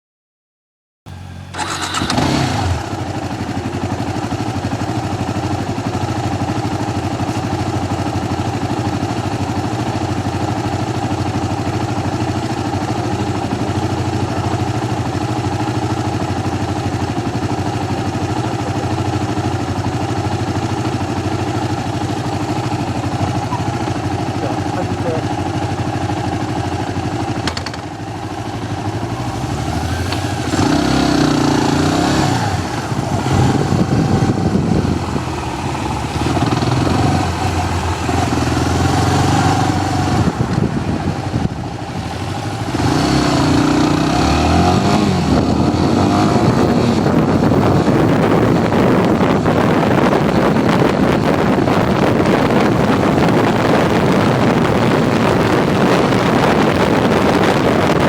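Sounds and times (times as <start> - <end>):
motorcycle engine accelerating: 1.1 - 58.0
wind rushing on microphone: 28.8 - 58.0.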